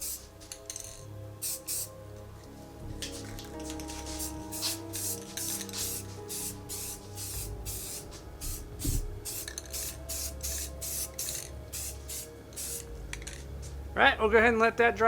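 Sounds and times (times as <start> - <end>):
spray paint hissing bursts: 0.0 - 0.4, 1.4 - 1.9, 3.9 - 12.9
background music: 0.0 - 15.0.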